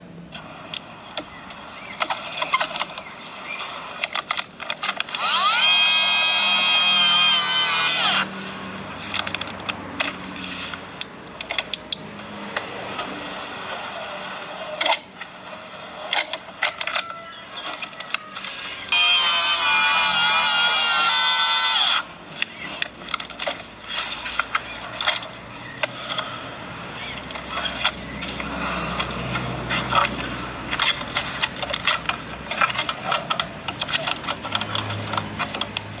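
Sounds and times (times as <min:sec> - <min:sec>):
hand tools clicking on pipe: 0:27.2 - 0:36.0.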